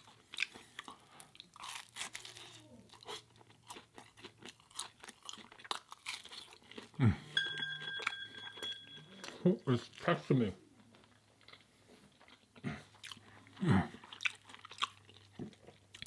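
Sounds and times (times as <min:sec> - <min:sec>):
chewing with wet mouth smacks: 0:00.0 - 0:07.0, 0:11.4 - 0:16.0.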